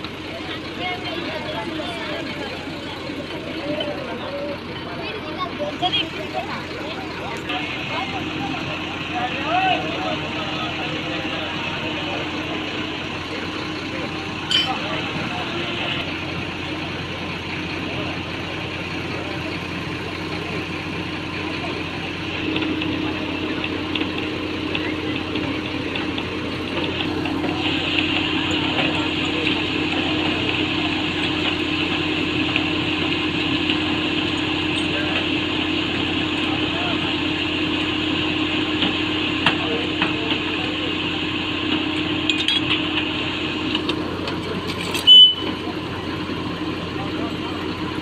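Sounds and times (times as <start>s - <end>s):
heavy diesel engine running: 0.0s - 48.0s
loud high-pitched tone: 14.5s - 15.0s, 45.0s - 45.7s.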